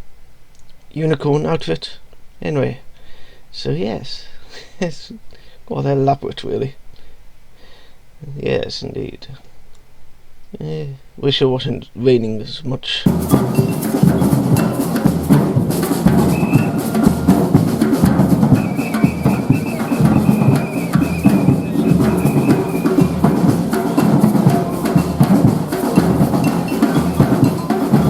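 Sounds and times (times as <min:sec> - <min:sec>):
bass drum beat: 0:13.1 - 0:28.0
held high note: 0:13.1 - 0:28.0
live band playing: 0:13.1 - 0:28.0.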